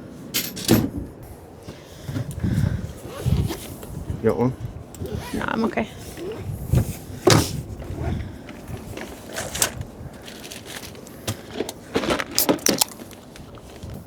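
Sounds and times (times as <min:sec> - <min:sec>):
objects knocking and clicking: 0:10.4 - 0:13.3.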